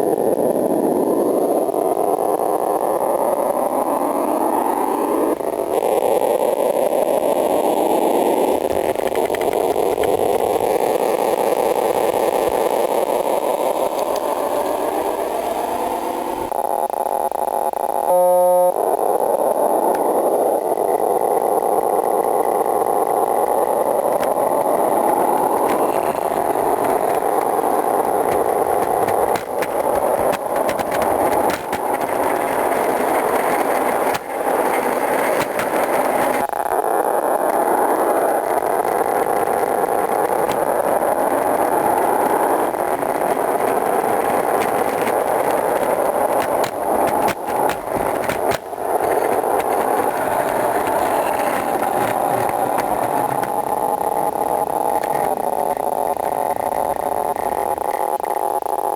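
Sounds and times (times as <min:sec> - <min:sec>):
loud steady tone: 0:15.5 - 0:55.5.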